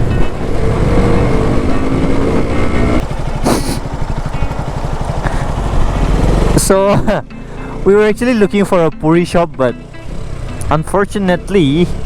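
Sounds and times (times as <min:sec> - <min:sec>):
motorcycle engine running: 0:00.0 - 0:12.0
short hiss: 0:03.4 - 0:03.8.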